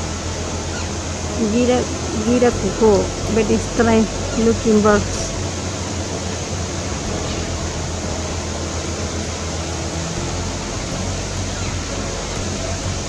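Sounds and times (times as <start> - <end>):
low hum: 0.0 - 13.0
steady rushing noise: 0.0 - 13.0.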